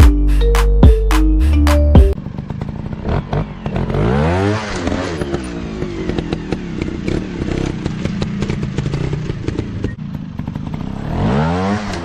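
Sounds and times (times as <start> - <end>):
dirt bike engine revving: 2.8 - 12.0.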